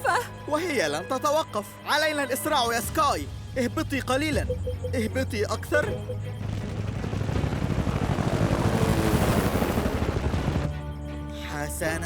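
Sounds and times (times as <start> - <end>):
sustained musical tones: 5.9 - 10.8
cartoon helicopter rotor whir: 6.4 - 10.7.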